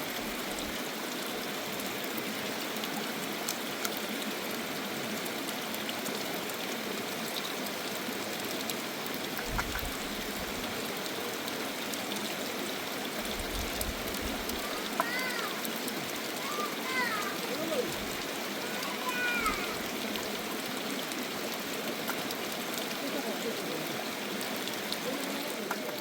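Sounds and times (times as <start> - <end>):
water rushing: 0.0 - 26.0
faint clicks: 13.4 - 15.7, 24.5 - 26.0.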